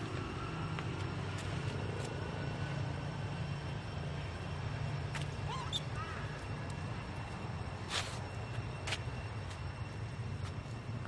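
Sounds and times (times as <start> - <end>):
low engine-like drone: 0.0 - 11.0.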